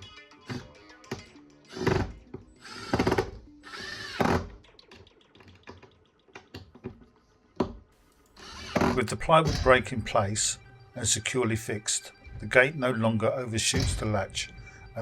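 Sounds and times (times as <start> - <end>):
impact driver driving screws: 1.7 - 4.5, 8.4 - 9.6.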